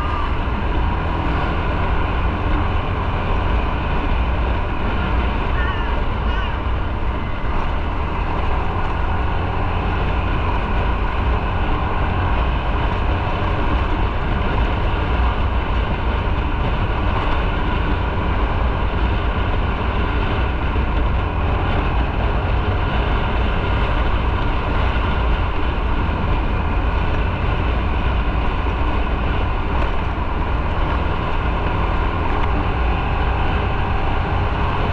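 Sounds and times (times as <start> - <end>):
motorcycle engine drone: 0.0 - 34.9
wind and road rumble: 0.0 - 34.9.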